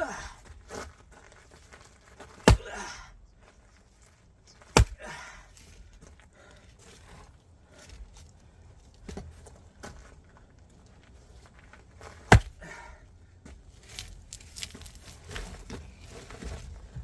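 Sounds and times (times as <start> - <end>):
axe striking log: 2.4 - 3.0, 4.7 - 5.2, 12.2 - 12.7.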